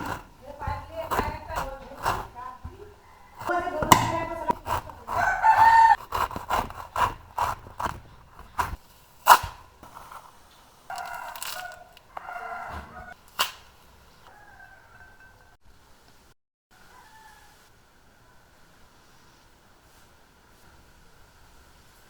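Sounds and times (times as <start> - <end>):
sharp knocks: 0.0 - 9.6
rooster crowing: 2.8 - 6.0, 10.9 - 13.2, 14.2 - 15.6, 16.7 - 18.5.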